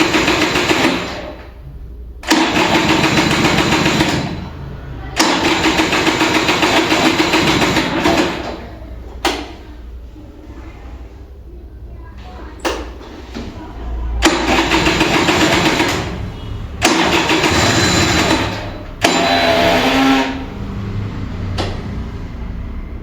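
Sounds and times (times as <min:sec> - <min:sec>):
scooter starter cranking engine: 0:02.2 - 0:09.6, 0:14.2 - 0:22.2.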